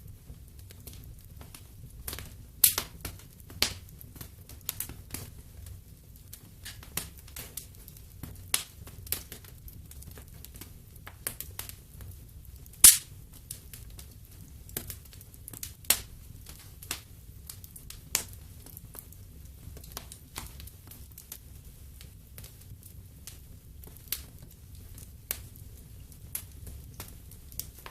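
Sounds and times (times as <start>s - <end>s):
wood fire crackling: 0.0s - 27.9s
loud pop from fire: 2.1s - 3.8s, 12.8s - 13.2s, 27.7s - 27.9s.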